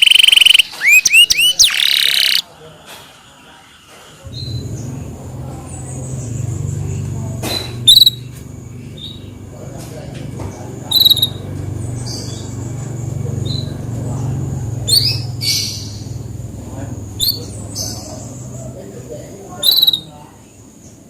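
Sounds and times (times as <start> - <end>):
canary singing: 0.0 - 2.5, 7.6 - 9.6, 10.6 - 21.0.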